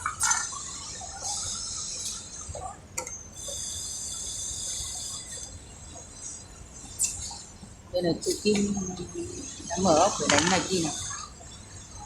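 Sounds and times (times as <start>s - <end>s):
high-pitched hiss: 3.4s - 5.5s.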